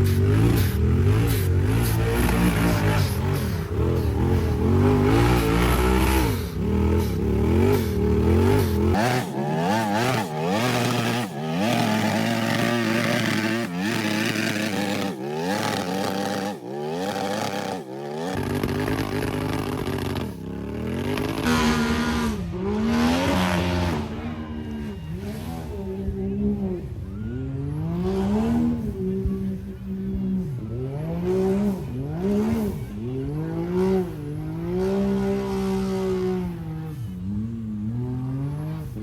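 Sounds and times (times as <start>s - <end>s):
off-road vehicle engines revving: 0.0s - 39.0s.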